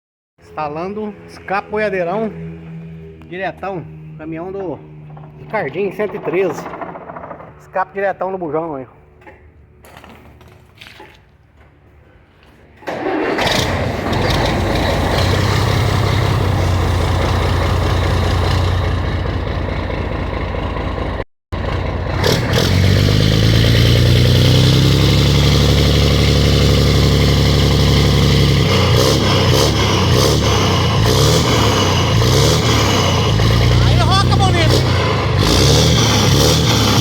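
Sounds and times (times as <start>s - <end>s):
diesel truck engine revving: 0.4s - 8.0s, 12.9s - 37.0s.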